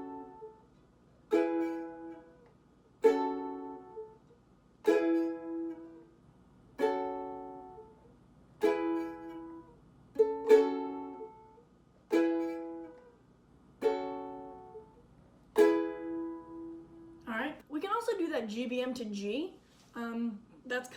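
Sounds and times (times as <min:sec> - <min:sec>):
ukulele chords strummed: 0:00.0 - 0:13.2, 0:13.8 - 0:17.2.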